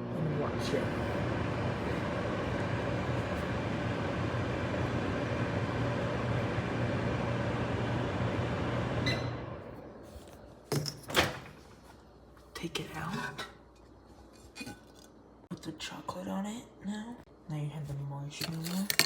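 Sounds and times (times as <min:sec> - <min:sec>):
microwave oven humming: 0:00.0 - 0:13.6.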